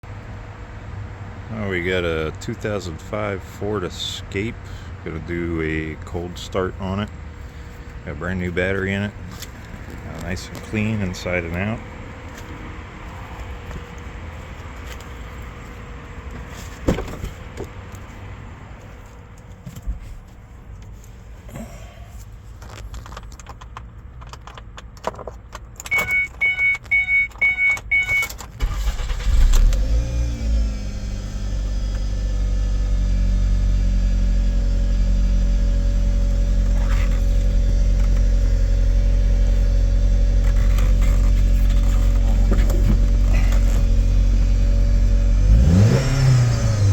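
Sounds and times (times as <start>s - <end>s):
car engine starting and idling: 0.1s - 46.9s
dashboard chime beeps: 25.9s - 28.3s.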